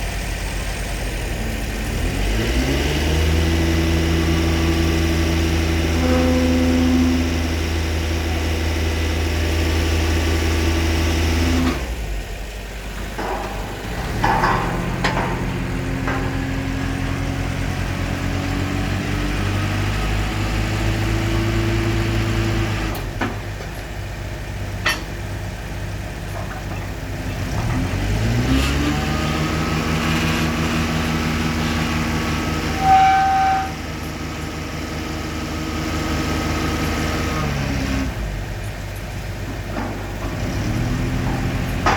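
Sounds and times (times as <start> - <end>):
pile-pressing rig engine running: 0.0 - 41.9
sharp metal clanks: 13.0 - 18.4.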